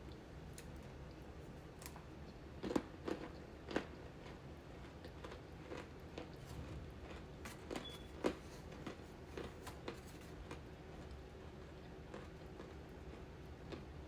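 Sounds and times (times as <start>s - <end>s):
crunchy candy being chewed: 2.3s - 11.2s, 11.8s - 14.0s.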